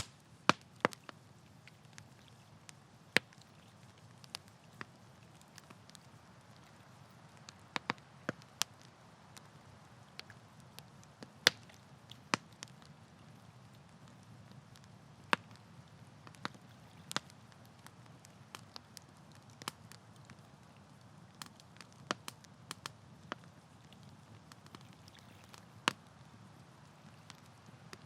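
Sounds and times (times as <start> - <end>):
campfire pops and snaps: 0.0 - 28.0.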